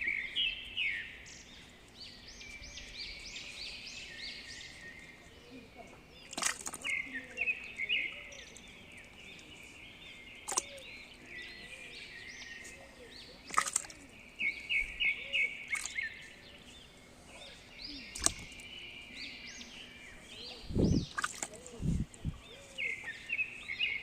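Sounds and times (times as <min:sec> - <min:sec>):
small birds chirping: 0:00.0 - 0:24.0
sharp clicks: 0:18.1 - 0:18.6.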